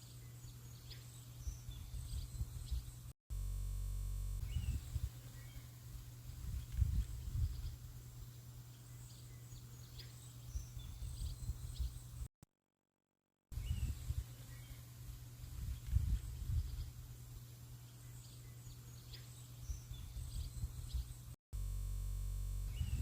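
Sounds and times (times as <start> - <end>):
steady hum: 3.4 - 12.3
bird chirps: 4.4 - 12.3.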